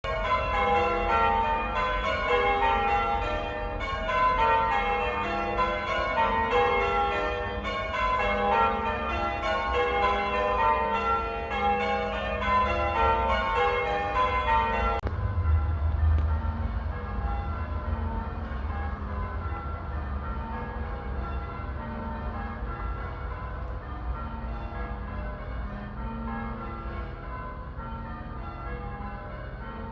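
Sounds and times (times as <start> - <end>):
church bells change-ringing: 0.0 - 29.9
low rumble: 15.0 - 19.2.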